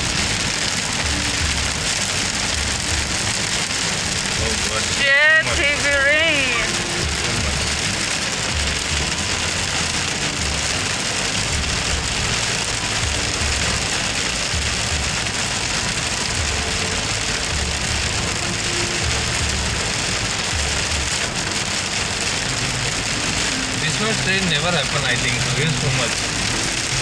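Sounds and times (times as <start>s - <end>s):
heavy rain on car: 0.0s - 27.0s
windshield wipers sweeping: 0.0s - 27.0s.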